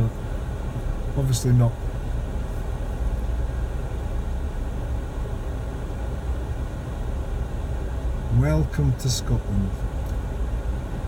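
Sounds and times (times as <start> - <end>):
car engine rumble: 0.0 - 11.0
road noise inside car: 0.0 - 11.0.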